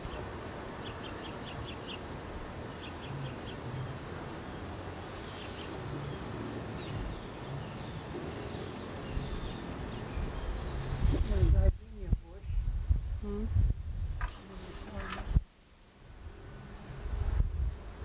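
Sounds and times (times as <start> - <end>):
small birds chirping: 0.0 - 12.6
steady background hiss: 0.0 - 18.0.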